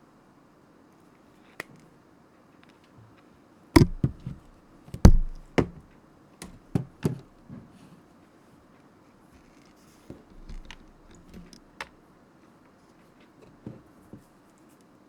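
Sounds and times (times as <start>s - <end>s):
knocks on a hard desk: 3.8s - 4.4s, 5.0s - 5.8s.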